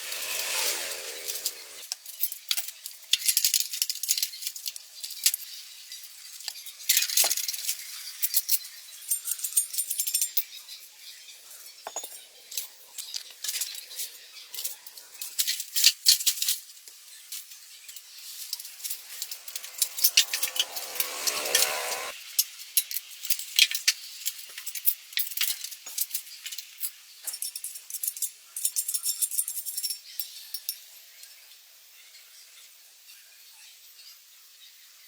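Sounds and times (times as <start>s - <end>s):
hand tools and metal parts clinking: 6.4s - 10.7s, 11.6s - 16.7s, 17.3s - 22.1s, 22.8s - 30.8s.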